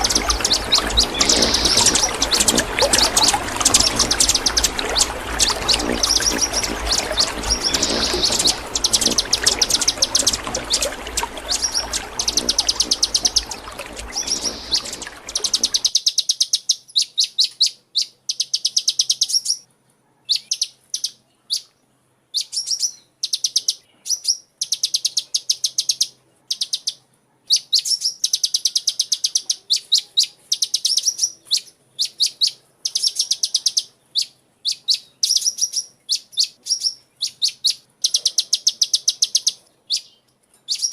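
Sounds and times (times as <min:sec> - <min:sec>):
steady hiss: 0:00.0 - 0:15.9
small bird chirping trills: 0:00.0 - 0:17.3.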